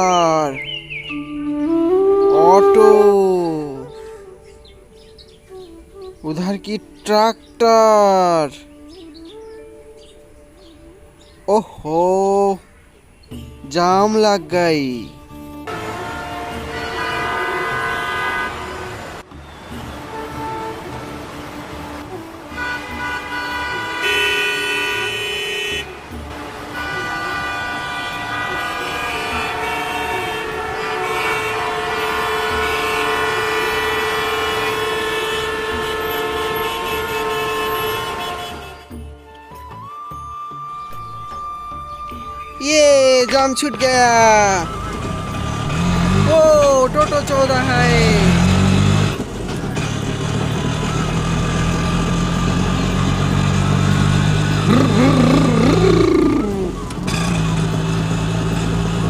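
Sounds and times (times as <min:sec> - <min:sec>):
vehicle horns honking: 0:00.0 - 0:04.1, 0:15.7 - 0:39.1, 0:42.9 - 0:49.2
wavering bending tone: 0:00.7 - 0:06.2.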